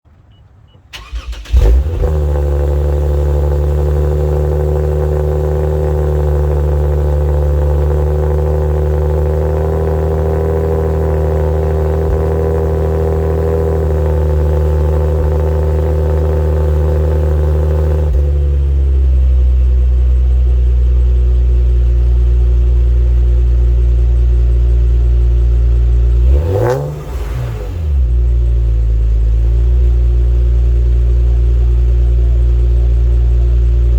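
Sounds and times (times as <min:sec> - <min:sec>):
car engine idling: 0:00.1 - 0:33.9
car engine cold start: 0:00.6 - 0:03.9.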